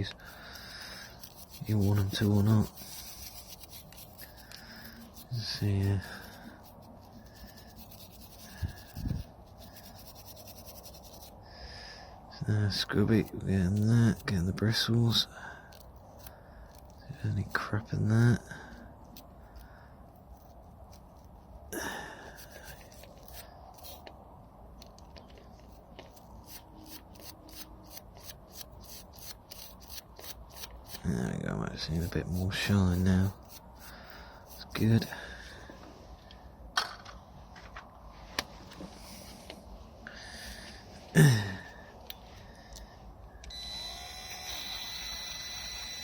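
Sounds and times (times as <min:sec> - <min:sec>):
brush scratching metal: 0:00.0 - 0:11.4, 0:12.5 - 0:24.1, 0:25.5 - 0:35.3.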